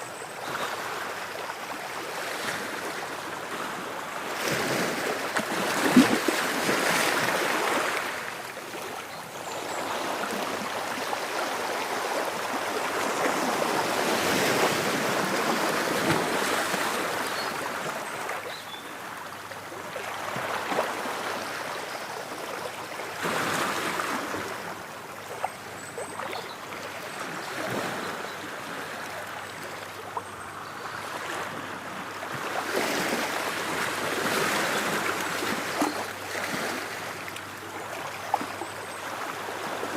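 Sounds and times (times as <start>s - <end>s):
ocean waves washing ashore: 0.7s - 18.4s.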